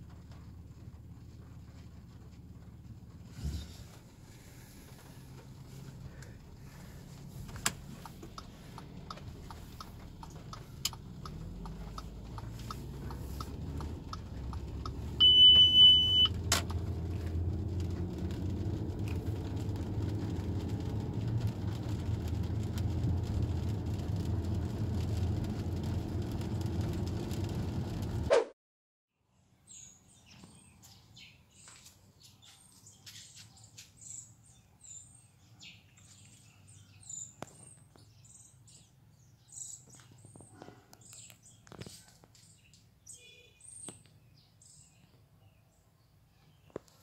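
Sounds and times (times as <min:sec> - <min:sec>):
car engine starting and idling: 0:00.0 - 0:28.3
light regular ticking: 0:03.9 - 0:28.2
high warning chime: 0:15.2 - 0:16.3.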